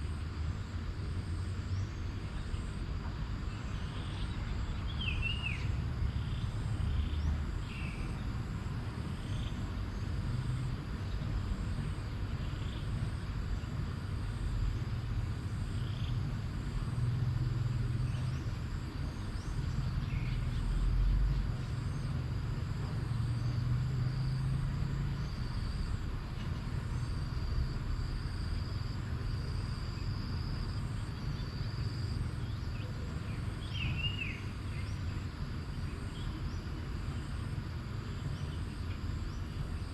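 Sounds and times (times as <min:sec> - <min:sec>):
insects droning: 0:00.0 - 0:39.9
bird chirping: 0:03.5 - 0:08.2, 0:32.4 - 0:35.1.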